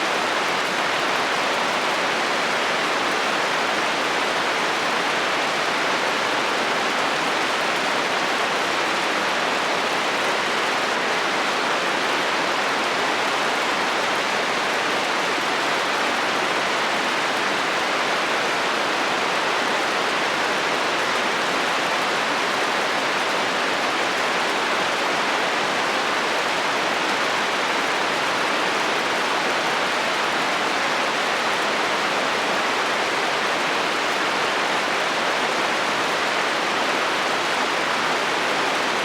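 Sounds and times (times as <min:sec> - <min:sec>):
heavy rain on a metal roof: 0:00.0 - 0:39.0.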